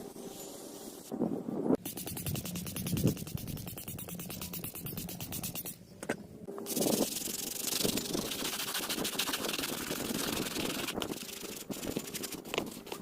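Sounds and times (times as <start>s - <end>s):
brush scrubbing stone: 1.8s - 5.7s, 6.6s - 13.0s.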